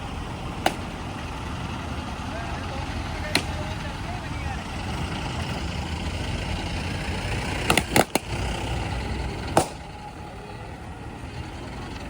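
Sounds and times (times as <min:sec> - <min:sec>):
heavy diesel machinery running: 0:00.0 - 0:12.0
sharp knocks: 0:00.6 - 0:01.0.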